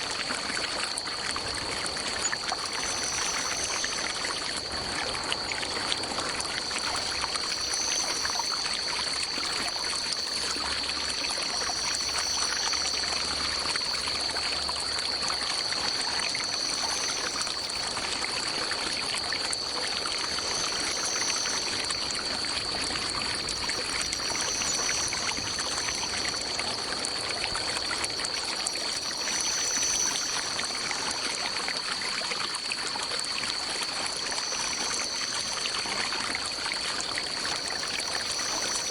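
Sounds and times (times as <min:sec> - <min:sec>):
constant high-pitched tone: 0:00.0 - 0:38.9
stream water trickling: 0:00.0 - 0:38.9.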